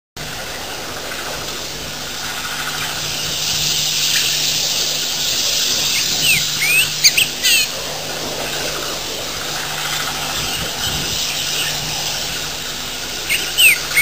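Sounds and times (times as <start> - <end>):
low electrical hum: 0.2 - 14.0
microphone hiss: 0.2 - 14.0
bird chirps: 5.6 - 7.7, 13.2 - 14.0.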